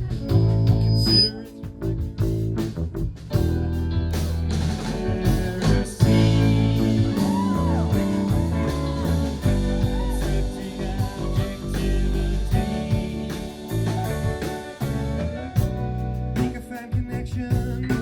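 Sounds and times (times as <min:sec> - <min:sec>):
live rock band playing: 0:00.0 - 0:18.0
lead guitar bending notes: 0:03.3 - 0:16.4.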